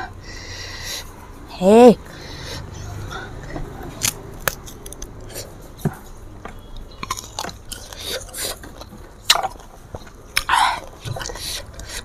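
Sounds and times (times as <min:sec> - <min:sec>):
close-up chewing with crunches: 0:04.0 - 0:05.6, 0:06.6 - 0:12.0.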